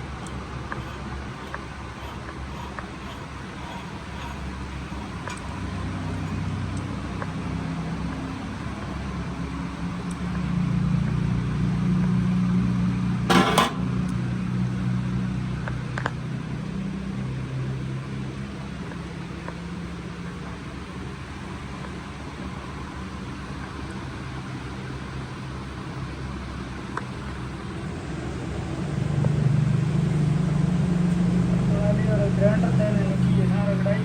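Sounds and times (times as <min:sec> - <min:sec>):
vehicle engine droning: 0:00.0 - 0:34.0
sharp loud clatter: 0:13.3 - 0:14.1.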